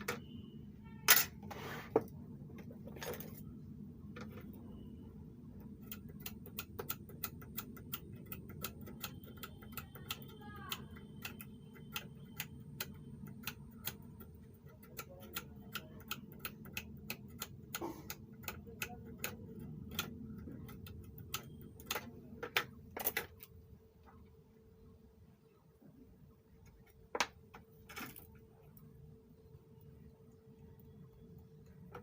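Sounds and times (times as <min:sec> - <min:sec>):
low steady hum: 0:00.0 - 0:32.0
rapid mechanical clicking: 0:05.6 - 0:22.8.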